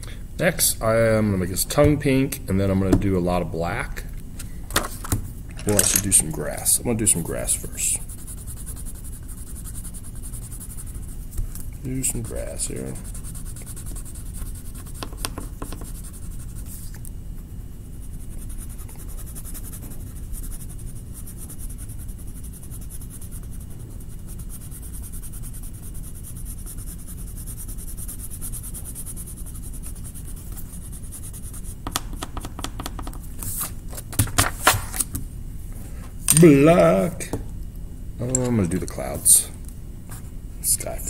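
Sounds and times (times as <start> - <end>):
colouring strokes scratching on paper: 7.0 - 11.2, 12.0 - 17.1, 17.7 - 31.8.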